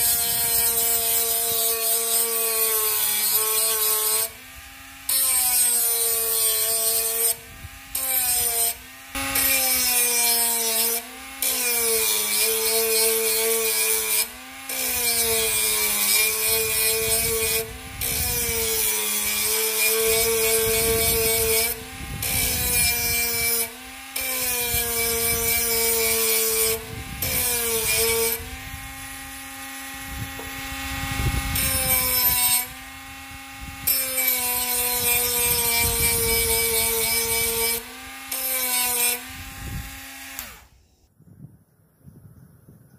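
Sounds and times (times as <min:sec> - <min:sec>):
angle grinder cutting: 0:00.0 - 0:41.0.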